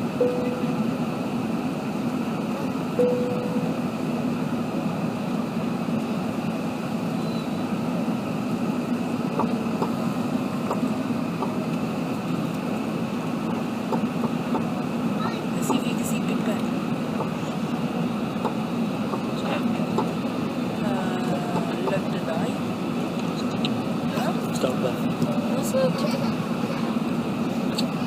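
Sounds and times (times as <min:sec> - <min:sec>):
airliner cabin rumble: 0:00.0 - 0:28.0
brief tone: 0:00.2 - 0:00.8, 0:03.0 - 0:03.8, 0:07.2 - 0:07.6.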